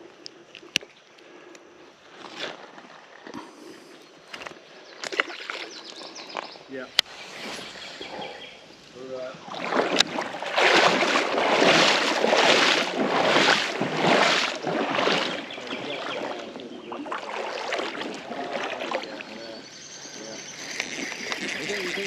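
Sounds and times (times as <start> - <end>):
creek water splashing: 4.4 - 22.0.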